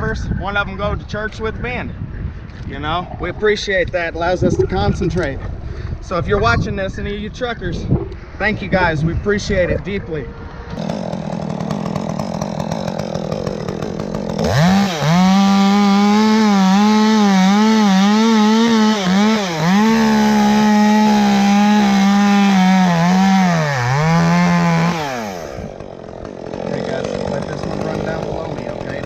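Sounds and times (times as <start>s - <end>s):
chainsaw cutting tree: 10.7s - 29.0s.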